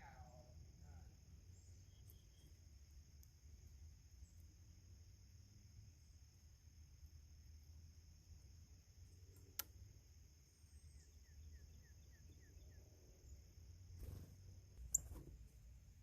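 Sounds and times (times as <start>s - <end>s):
faint bird chirps: 0.0s - 4.8s, 9.0s - 16.0s.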